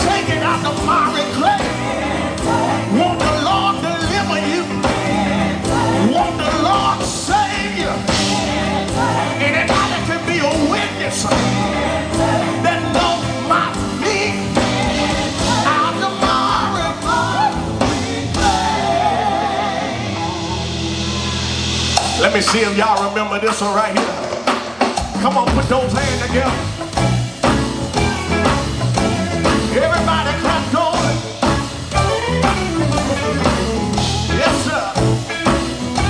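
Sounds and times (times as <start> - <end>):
gospel band playing: 0.0 - 36.0
lead vocal singing: 0.0 - 36.0.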